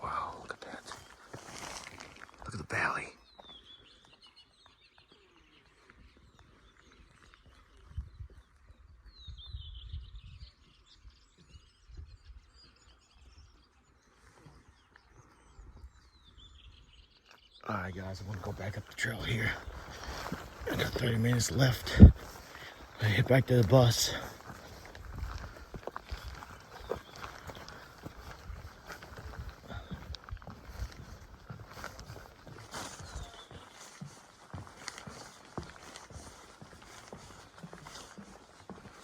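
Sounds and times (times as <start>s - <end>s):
footsteps on a trail: 0.0s - 8.8s, 17.6s - 39.0s
small birds chirping: 0.0s - 39.0s
low rumbles on the microphone: 18.0s - 27.2s.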